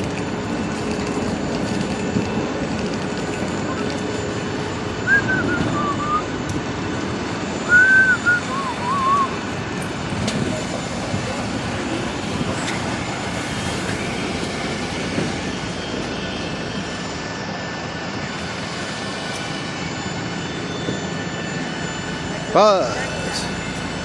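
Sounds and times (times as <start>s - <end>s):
aircraft engines rumbling: 0.0s - 24.0s
short whistle-like phrases: 5.1s - 6.2s, 7.7s - 9.4s.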